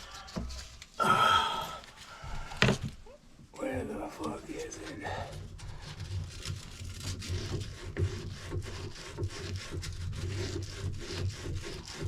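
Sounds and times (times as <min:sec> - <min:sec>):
hand sawing: 0:00.0 - 0:00.9, 0:03.6 - 0:12.0.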